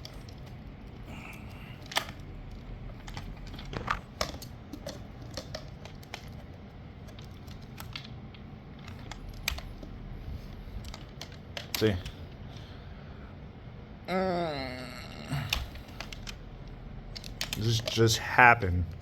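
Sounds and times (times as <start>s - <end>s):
low steady hum: 0.0s - 19.0s
plastic clicks and knocks: 1.8s - 10.0s.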